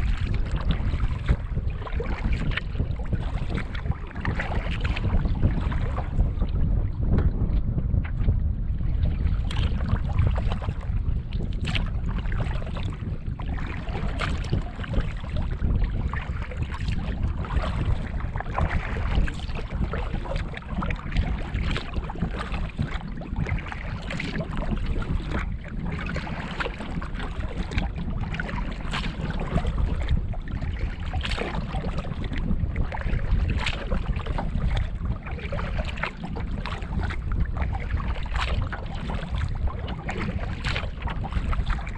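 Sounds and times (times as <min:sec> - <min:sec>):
water splashing along canoe: 0:00.0 - 0:41.9
wind rumbling on microphone: 0:00.0 - 0:41.9.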